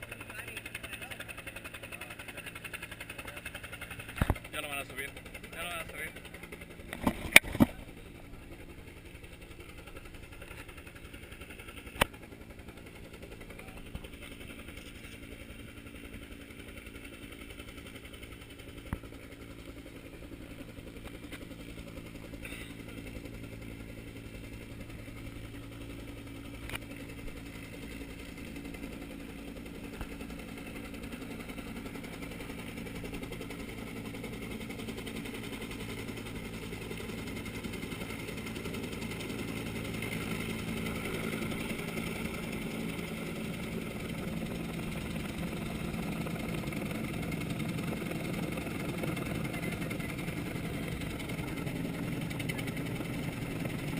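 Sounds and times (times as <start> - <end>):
low engine hum: 0.0 - 53.9.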